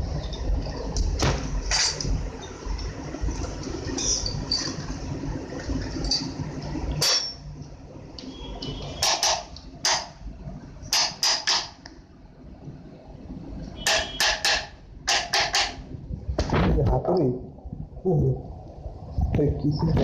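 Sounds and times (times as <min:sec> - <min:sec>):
hammer knocking: 0:13.8 - 0:15.8.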